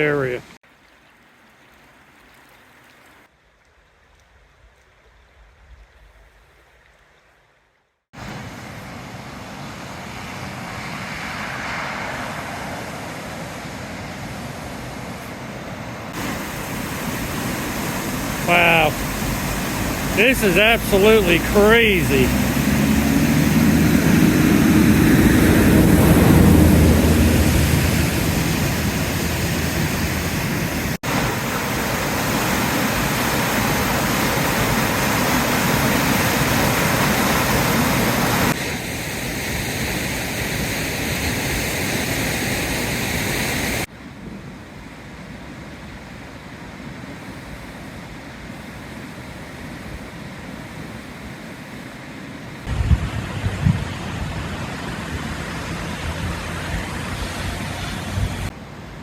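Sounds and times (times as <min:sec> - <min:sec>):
floodwater rushing: 0:08.2 - 0:43.9, 0:52.6 - 0:59.0
low engine hum: 0:16.2 - 0:32.2, 0:52.6 - 0:58.6.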